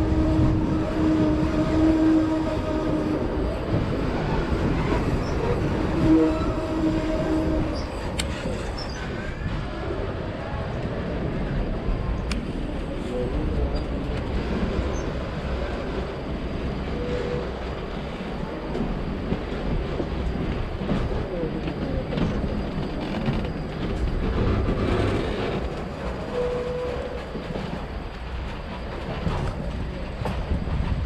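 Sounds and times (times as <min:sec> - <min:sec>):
train rumbling and rattling: 0:00.0 - 0:31.0.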